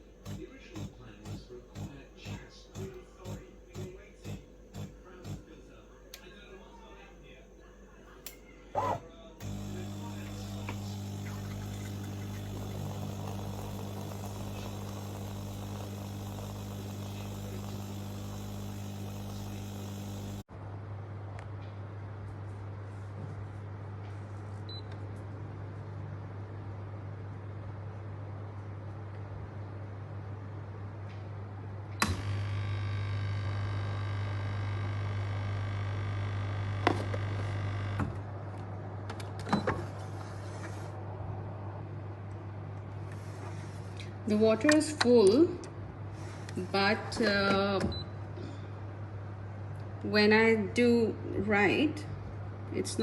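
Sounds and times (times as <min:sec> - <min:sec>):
low buzzing hum: 0:00.0 - 0:20.5, 0:32.0 - 0:38.1
small electric motor running: 0:00.2 - 0:05.5, 0:08.8 - 0:20.5, 0:32.1 - 0:38.0.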